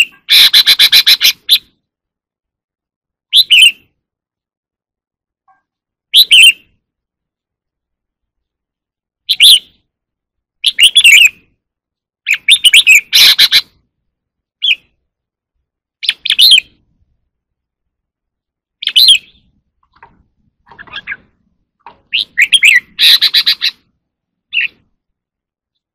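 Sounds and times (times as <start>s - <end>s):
bird singing whistled phrases: 3.3s - 3.9s, 6.1s - 6.7s, 9.3s - 9.8s, 10.6s - 11.4s, 12.3s - 13.7s, 18.8s - 19.5s, 22.1s - 23.8s.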